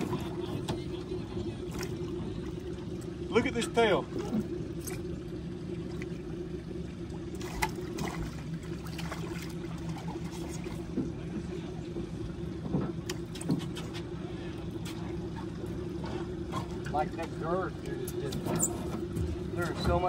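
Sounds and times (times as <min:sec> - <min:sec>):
boat motor idling: 0:00.0 - 0:20.0
knocks and taps on boat: 0:09.9 - 0:14.2.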